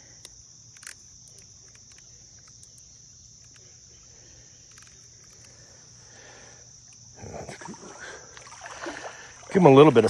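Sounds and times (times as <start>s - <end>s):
insects chirring: 0.0s - 10.0s
faint clicks: 0.2s - 3.7s.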